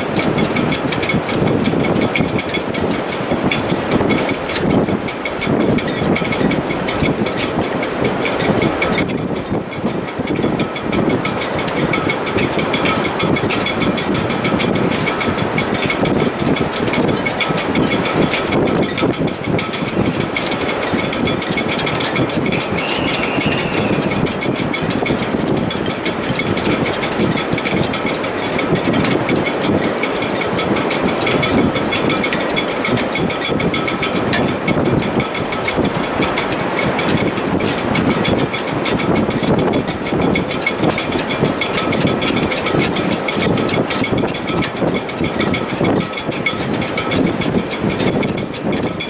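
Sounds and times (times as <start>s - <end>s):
strong wind roaring: 0.0s - 49.0s
rigging whistling: 0.1s - 46.3s
high whistle of rigging: 22.2s - 25.2s.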